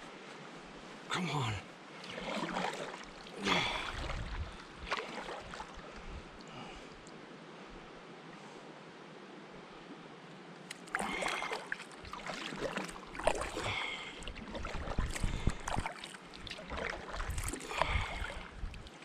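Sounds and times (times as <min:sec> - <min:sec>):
paddle splashing in water: 0:02.0 - 0:06.2, 0:10.7 - 0:19.0.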